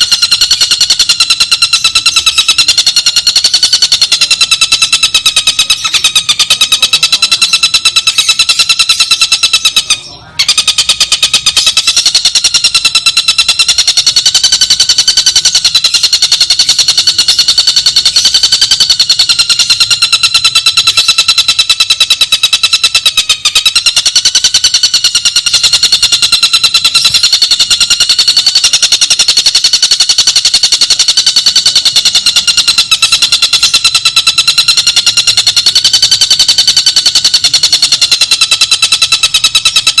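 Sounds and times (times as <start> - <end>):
bird trilling: 0.0 - 40.0.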